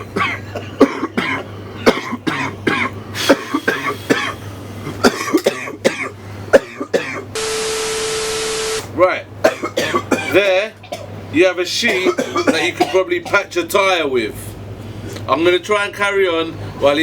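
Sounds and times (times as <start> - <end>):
man coughing laughter: 0.0 - 7.3, 9.5 - 11.1, 11.9 - 13.5
electronic beep with hiss: 7.4 - 8.8.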